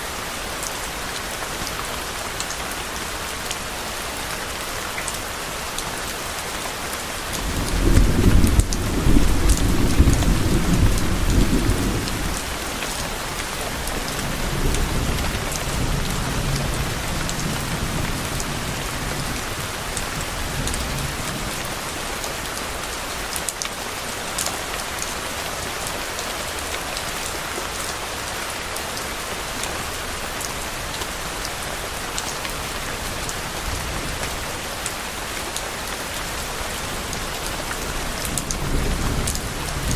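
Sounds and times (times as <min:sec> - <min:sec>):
steady rain falling: 0:00.0 - 0:39.9
thunder rumbling: 0:07.4 - 0:12.6.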